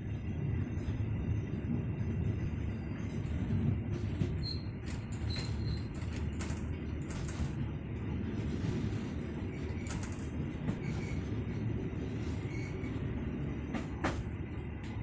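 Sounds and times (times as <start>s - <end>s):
train wheels rumbling on track: 0.0s - 15.0s
high squeaks and creaks: 4.4s - 6.6s.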